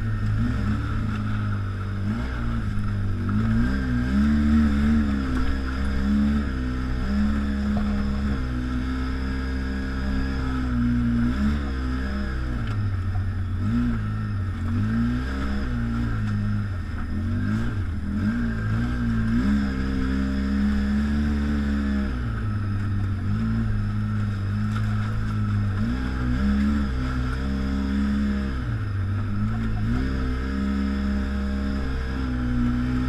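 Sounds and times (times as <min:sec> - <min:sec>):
atv engine revving: 0:00.0 - 0:33.0
steady high whine: 0:00.0 - 0:33.0.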